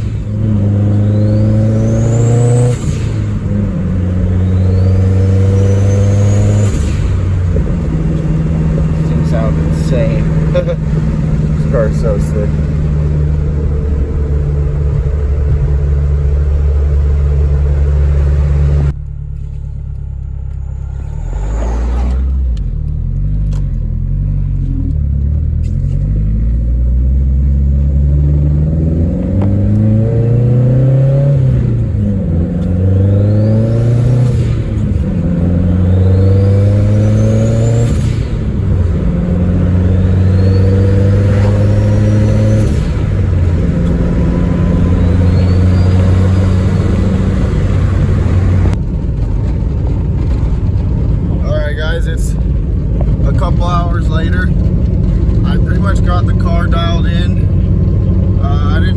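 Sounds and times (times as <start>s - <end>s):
turbo whine: 0.0s - 23.6s, 32.9s - 48.8s
car engine revving through gears: 0.0s - 58.9s.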